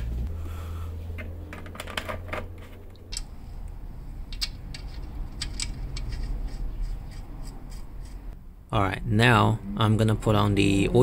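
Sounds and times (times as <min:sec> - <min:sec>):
tools clicking and tapping: 0:04.3 - 0:08.2.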